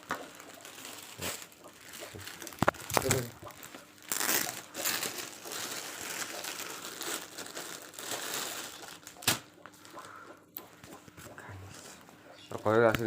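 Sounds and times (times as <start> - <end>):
packaging crinkling: 0.0 - 10.1.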